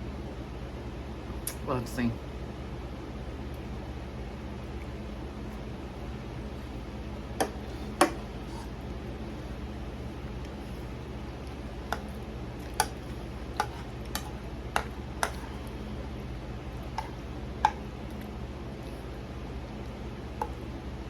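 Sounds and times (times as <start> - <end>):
steady low hum: 0.0 - 21.0
utensil clinking against dish: 13.6 - 15.5.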